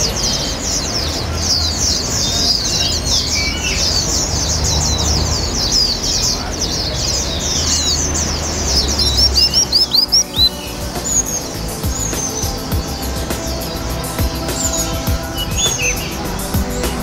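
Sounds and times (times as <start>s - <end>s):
songbirds chirping and singing: 0.0s - 17.0s
bird sharp repeated notes: 8.8s - 17.0s.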